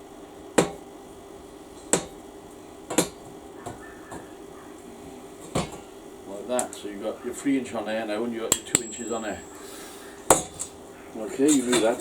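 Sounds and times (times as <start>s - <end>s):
hammer striking steel: 8.5s - 9.3s.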